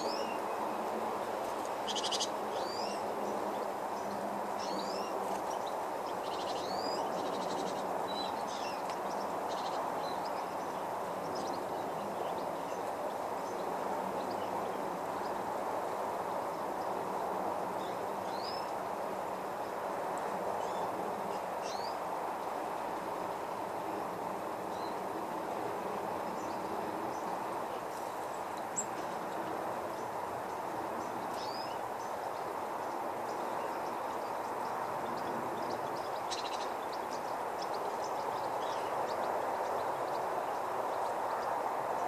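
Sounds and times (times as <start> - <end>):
small birds chirping: 0.0 - 18.8, 19.5 - 42.0
bird trills: 1.8 - 3.0.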